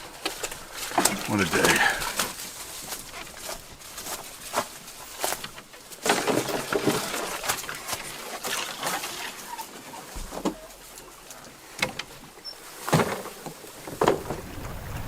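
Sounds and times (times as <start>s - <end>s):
footsteps on forest trail: 0.0s - 6.0s.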